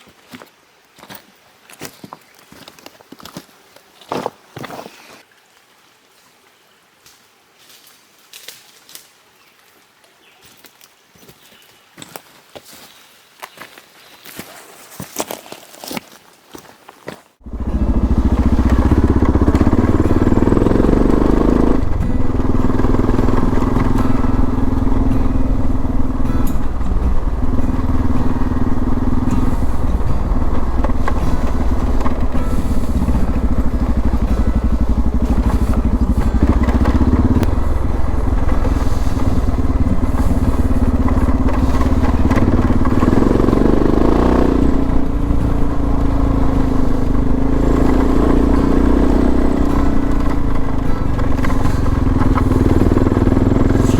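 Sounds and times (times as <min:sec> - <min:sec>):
motorcycle engine running: 0:17.4 - 0:53.9.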